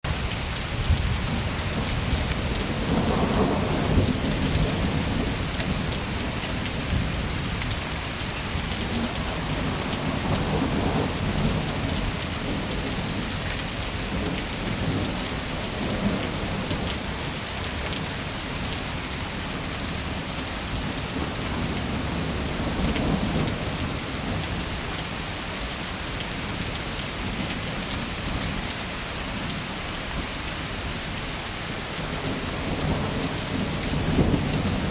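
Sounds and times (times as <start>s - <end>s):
heavy rain: 0.0s - 34.9s
low thunder rumbles: 0.7s - 18.0s, 32.0s - 34.9s.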